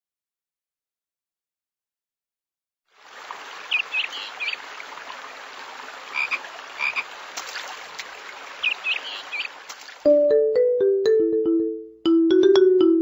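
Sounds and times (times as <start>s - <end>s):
rainforest ambience hiss: 3.0s - 9.6s
frog-like chirping calls: 6.1s - 7.1s, 8.6s - 9.6s.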